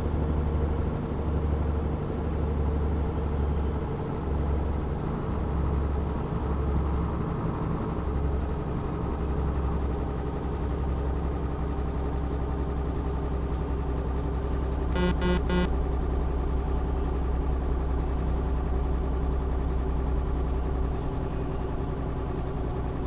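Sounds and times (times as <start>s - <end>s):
truck engine driving: 0.0s - 23.0s
horn toots: 14.9s - 15.7s.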